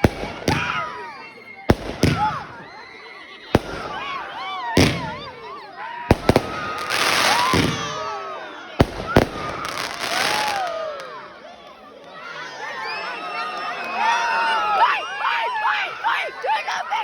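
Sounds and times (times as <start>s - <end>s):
firework bangs: 0.0s - 0.9s, 1.7s - 2.8s, 3.5s - 5.4s, 6.1s - 8.2s, 8.8s - 10.8s
firework crackle: 1.7s - 2.4s, 6.1s - 8.0s, 8.8s - 10.9s.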